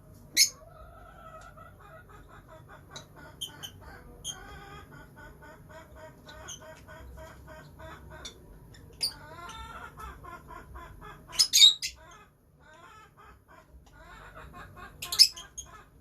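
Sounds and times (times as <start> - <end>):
lovebirds chirping: 0.2 - 16.0
shrill bird squawks: 0.3 - 0.6, 11.3 - 13.4, 14.1 - 16.0.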